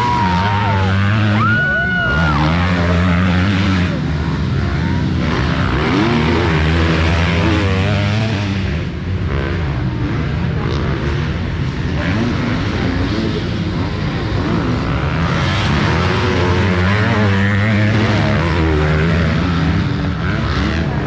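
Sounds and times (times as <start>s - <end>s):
steady low drone: 0.0s - 15.3s
motocross bikes revving: 0.0s - 21.0s.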